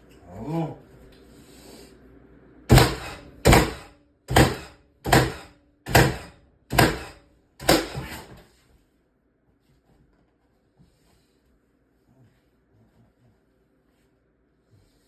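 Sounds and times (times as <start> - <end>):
nail gun firing into wood: 2.7 - 8.3.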